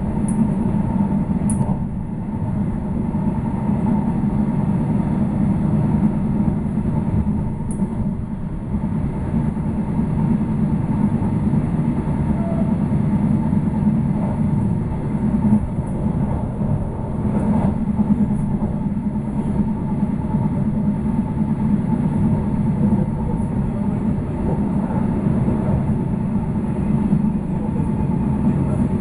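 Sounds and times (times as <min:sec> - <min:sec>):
train wheels rumbling on rails: 0:00.0 - 0:29.0
faint high tone: 0:12.3 - 0:12.8.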